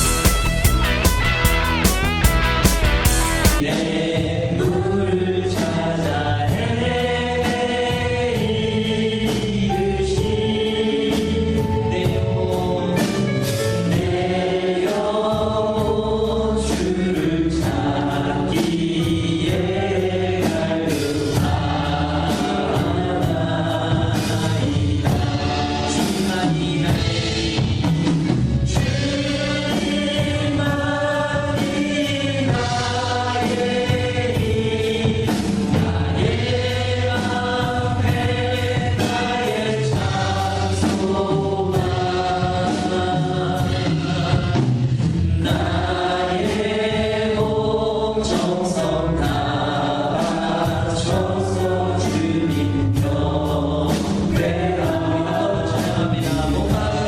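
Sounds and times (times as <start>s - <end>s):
instrumental accompaniment: 0.0s - 4.9s, 7.4s - 15.9s
choir singing: 0.0s - 27.9s, 28.7s - 57.0s.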